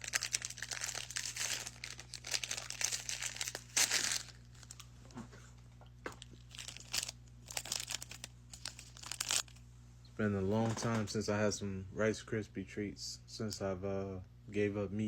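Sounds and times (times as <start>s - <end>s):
snack wrapper crinkling and tearing: 0.0s - 4.9s, 6.2s - 9.6s.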